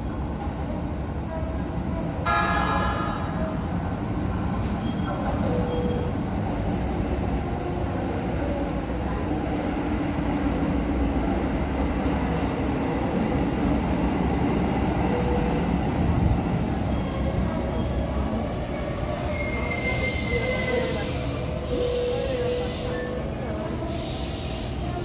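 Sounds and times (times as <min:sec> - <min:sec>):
train wheels rumbling on rails: 0:00.1 - 0:25.0.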